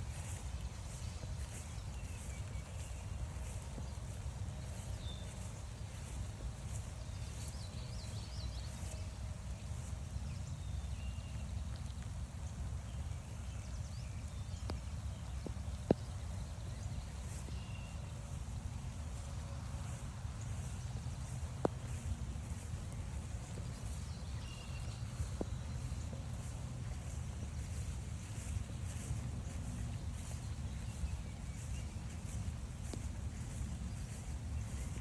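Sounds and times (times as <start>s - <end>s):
faint songbird chirps: 0.0s - 35.0s
footsteps on wet trail: 0.0s - 35.0s
steady low rumble: 0.0s - 35.0s.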